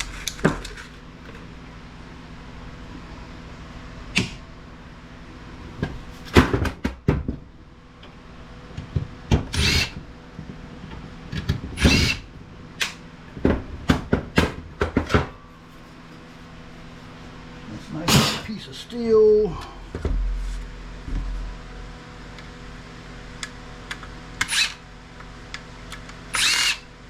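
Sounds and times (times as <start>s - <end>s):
cordless drill running: 9.5s - 10.0s, 11.8s - 12.3s, 24.4s - 24.8s, 26.3s - 26.9s.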